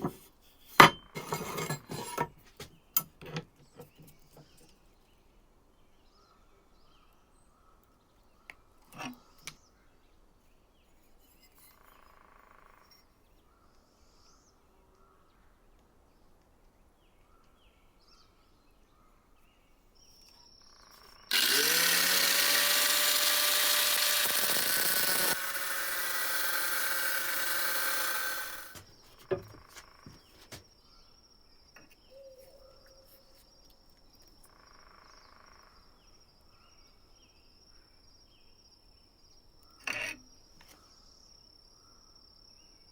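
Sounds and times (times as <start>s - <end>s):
electric power tool whine: 21.0s - 30.5s
handling knocks and clicks: 28.7s - 30.6s.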